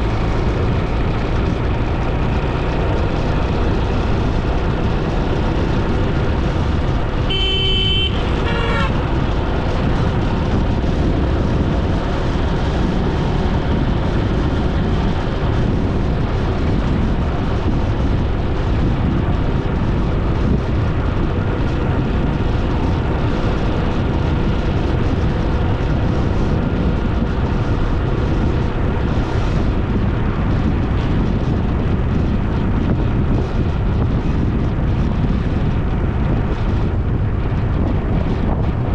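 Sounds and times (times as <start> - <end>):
motorbike road and wind noise: 0.0 - 38.9
vehicle horn honking: 7.2 - 9.2.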